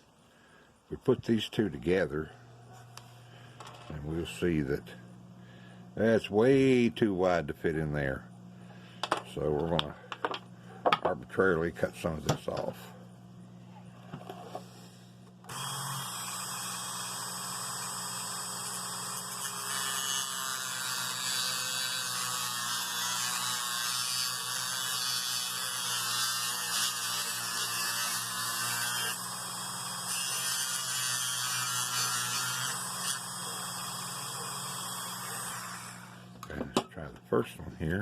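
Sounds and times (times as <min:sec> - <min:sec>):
electric rotary tool cutting plastic: 0:15.4 - 0:36.4.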